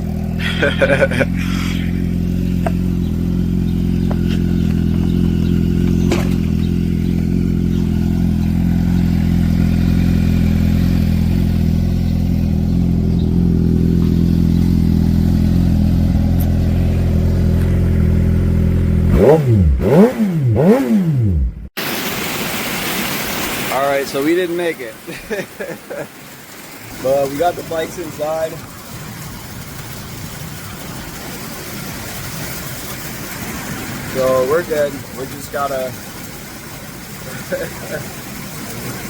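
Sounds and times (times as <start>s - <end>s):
motorcycle engine idling: 0.0s - 19.1s.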